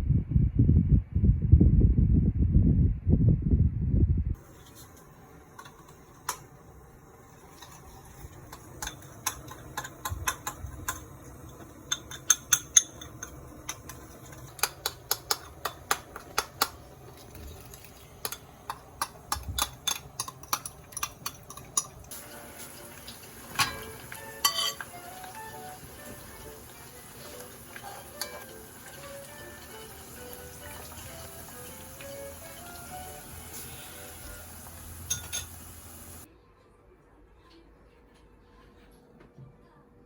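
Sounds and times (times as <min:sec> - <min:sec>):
kitchen utensils clinking: 0:04.4 - 0:06.6, 0:07.2 - 0:36.3
steady high hiss: 0:22.1 - 0:36.3.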